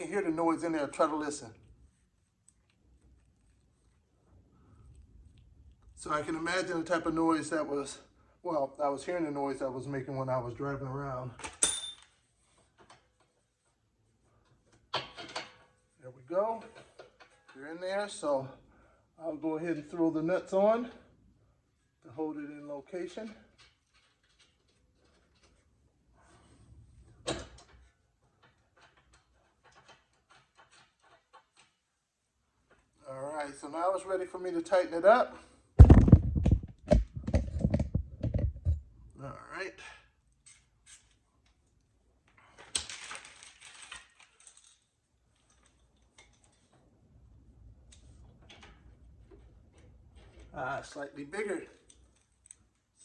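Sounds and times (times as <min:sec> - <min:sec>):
small metal clicks and ticks: 0:23.5 - 0:25.6, 0:51.7 - 0:53.0.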